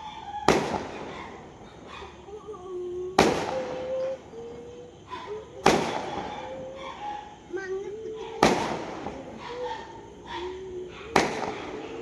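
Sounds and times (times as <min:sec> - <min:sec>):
fireworks bangs: 0:00.0 - 0:01.9, 0:03.2 - 0:04.3, 0:05.5 - 0:06.7, 0:08.3 - 0:10.2, 0:11.1 - 0:12.0.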